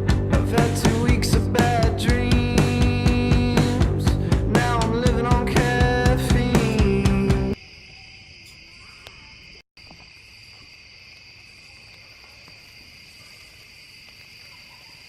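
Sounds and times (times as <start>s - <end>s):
crickets chirping: 7.5s - 15.0s.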